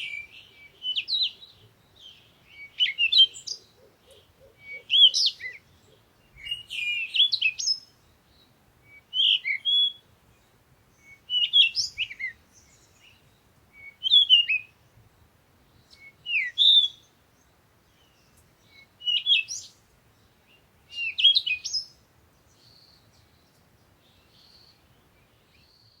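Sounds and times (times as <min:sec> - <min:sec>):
songbird singing whistled phrases: 0:00.0 - 0:08.0, 0:08.8 - 0:10.1, 0:11.0 - 0:14.8, 0:15.8 - 0:17.1, 0:18.0 - 0:19.8, 0:20.9 - 0:22.0
faint bird calls: 0:00.0 - 0:26.0.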